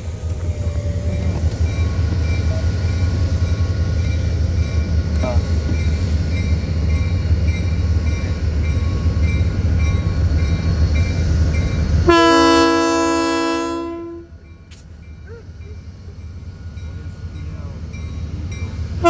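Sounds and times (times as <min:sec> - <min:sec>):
diesel locomotive engine rumbling: 0:00.0 - 0:19.0
locomotive horn blast: 0:12.0 - 0:14.4.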